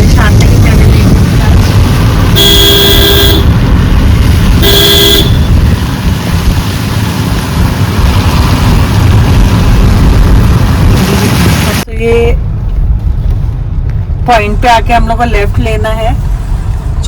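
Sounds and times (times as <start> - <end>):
car driving rumble: 0.0 - 17.0
car horn: 2.3 - 3.7, 4.6 - 5.7.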